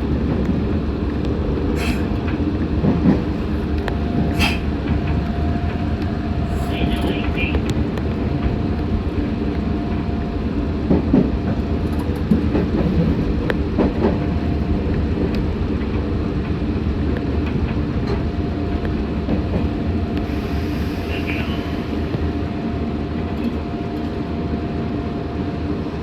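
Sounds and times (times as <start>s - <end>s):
train wheels rumbling on track: 0.0s - 26.0s
train creaks and squeals: 3.0s - 8.7s, 20.2s - 22.4s.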